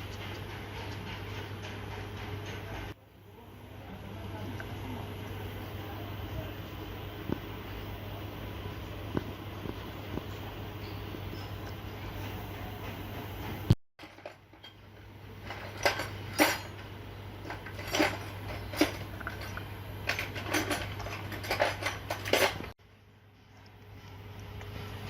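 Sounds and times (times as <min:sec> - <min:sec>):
steady low hum: 0:00.0 - 0:25.0
metal tools clinking: 0:14.0 - 0:22.7.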